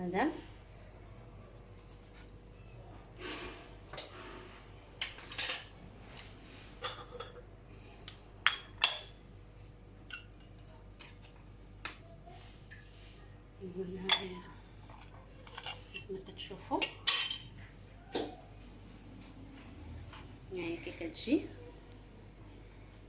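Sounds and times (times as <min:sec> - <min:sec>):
knife scraping a plate: 0:15.0 - 0:16.0.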